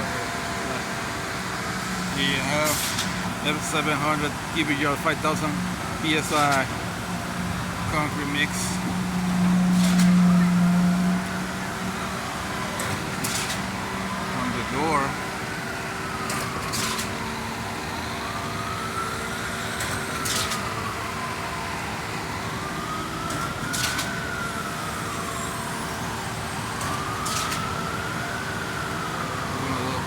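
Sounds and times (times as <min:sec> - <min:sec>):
siren wailing: 0:00.0 - 0:30.0
mechanical hum: 0:05.6 - 0:14.4.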